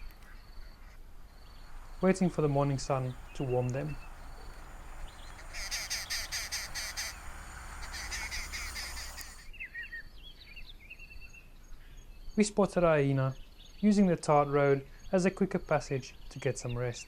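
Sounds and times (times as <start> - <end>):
birds chattering in chorus: 1.4 - 9.5
short bird chirps: 1.4 - 10.0.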